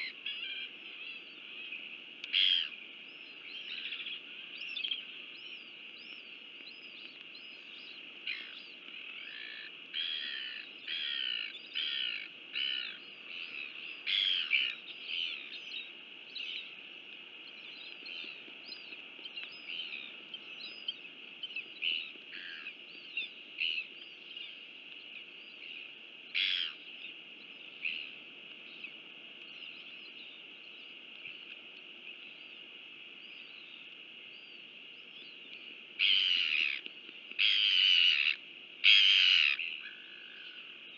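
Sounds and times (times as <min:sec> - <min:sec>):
birds chirping and calling: 0:00.0 - 0:16.8, 0:17.5 - 0:26.8, 0:36.0 - 0:40.6.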